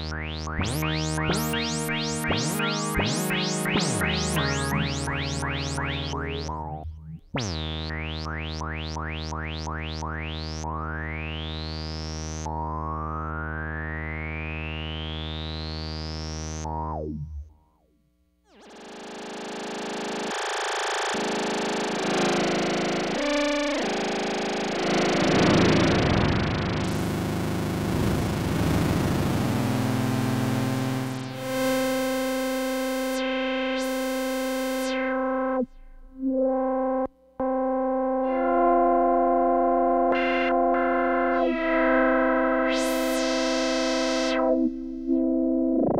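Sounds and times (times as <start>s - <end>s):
synthesizer rising sweep: 0.0s - 11.2s, 40.0s - 45.9s
synthesizer low drone: 0.0s - 17.5s, 21.1s - 45.9s.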